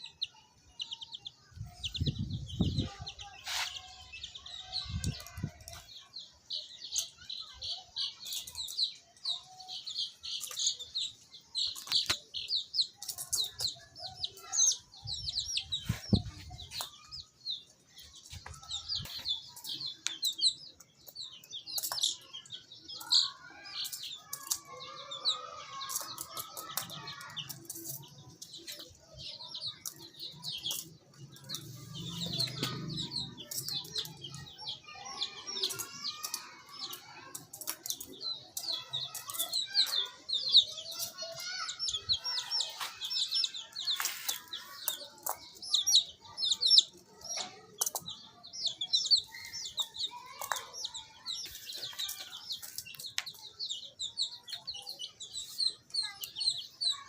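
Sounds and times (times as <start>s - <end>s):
baby chicks peeping: 0.0s - 57.0s
sharp clicks and taps: 47.4s - 48.2s.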